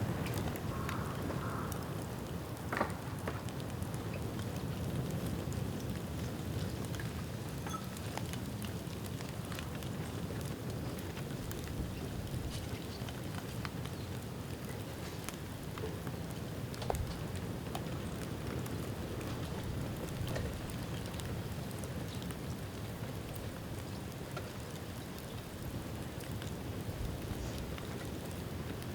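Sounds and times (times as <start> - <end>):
sharp crack of burning bamboo: 0.0 - 6.0
crackles and small pops: 0.1 - 28.9.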